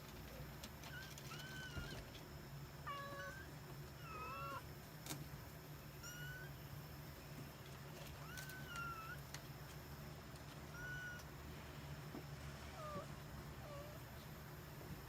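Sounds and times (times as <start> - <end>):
steady low hum: 0.0 - 15.0
kittens mewing: 2.8 - 4.7, 6.0 - 6.6, 8.0 - 9.4, 10.7 - 11.3.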